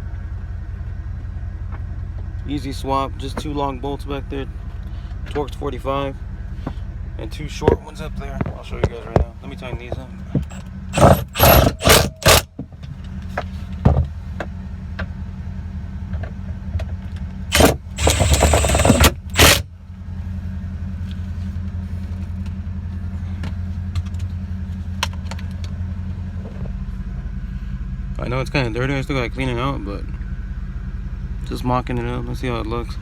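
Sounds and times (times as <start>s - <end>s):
low engine hum: 0.0s - 33.0s
hand tool tightening bolts: 10.4s - 12.5s, 17.5s - 19.6s.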